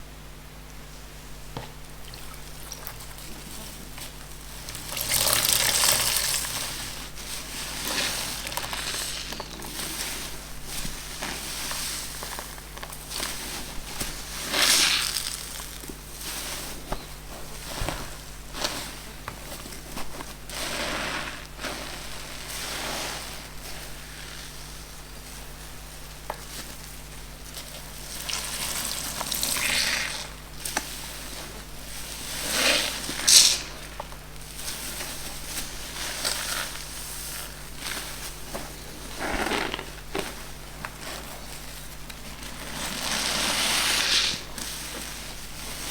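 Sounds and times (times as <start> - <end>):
sponges squeezed by hand: 32.4 - 34.0, 42.4 - 44.7.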